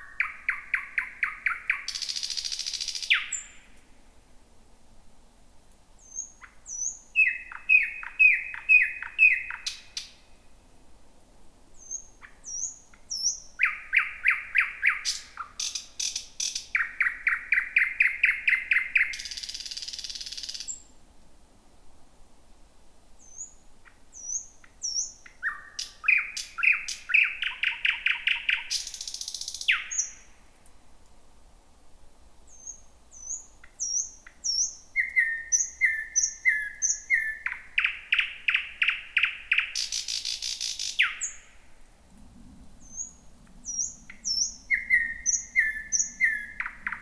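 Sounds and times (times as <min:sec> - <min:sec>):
bird singing: 0:06.0 - 0:10.1, 0:23.2 - 0:30.3, 0:32.5 - 0:41.6, 0:42.7 - 0:47.0
high bird whistles: 0:42.8 - 0:47.0.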